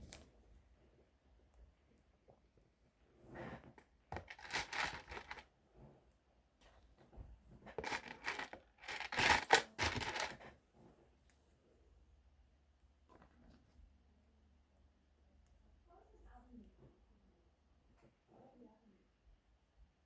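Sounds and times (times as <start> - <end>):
plastic bricks clattering: 4.2 - 5.4, 7.8 - 10.4.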